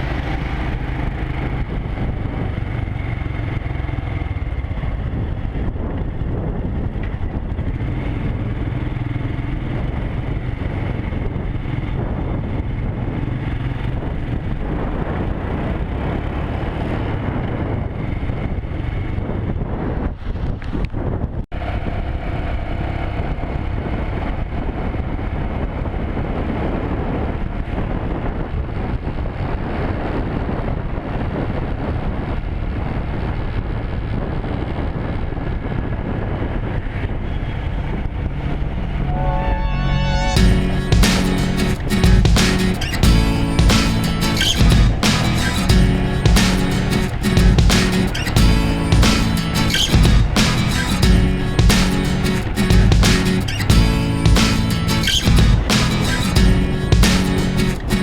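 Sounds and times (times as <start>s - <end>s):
wind and road noise: 0.0s - 58.0s
motorcycle engine running: 40.4s - 58.0s.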